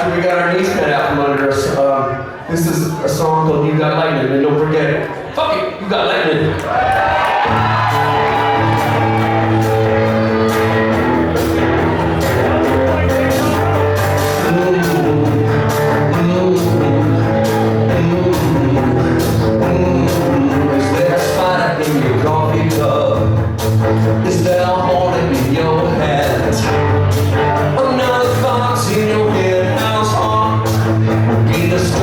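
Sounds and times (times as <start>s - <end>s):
guitars: 7.0s - 32.0s
bass guitar: 7.1s - 32.0s
drums keeping a steady beat: 7.1s - 32.0s.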